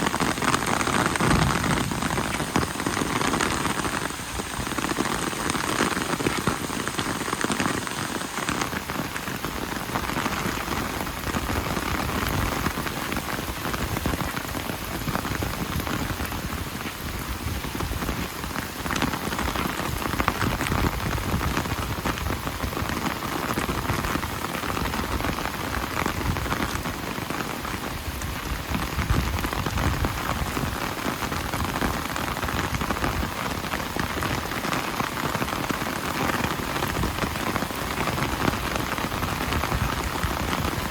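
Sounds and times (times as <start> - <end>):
rain pattering on surfaces: 0.0 - 40.9.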